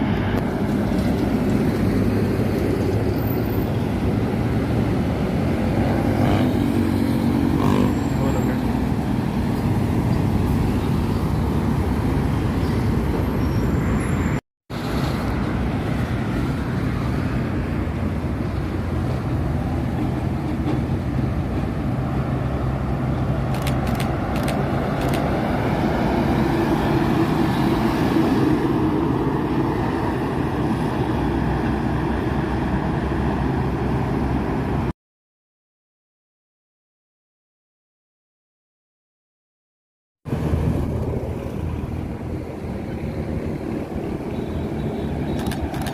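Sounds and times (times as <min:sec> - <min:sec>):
trucks and buses driving past: 0:00.0 - 0:34.9, 0:40.3 - 0:45.9
sharp clicks: 0:23.5 - 0:25.3, 0:45.3 - 0:45.9.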